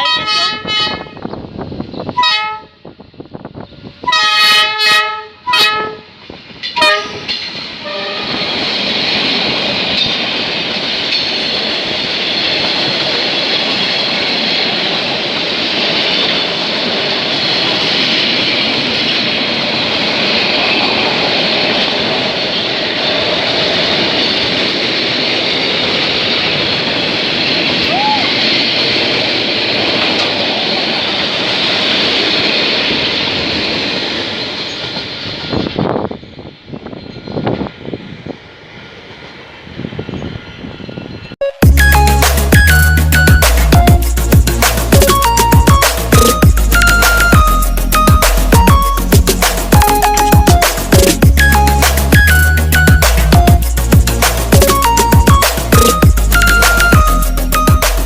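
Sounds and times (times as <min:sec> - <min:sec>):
train horn blasts: 0:00.0 - 0:01.3, 0:02.1 - 0:02.9, 0:04.0 - 0:06.2, 0:06.8 - 0:08.5
train wheels clattering on rails: 0:06.2 - 0:38.6, 0:42.5 - 0:58.0.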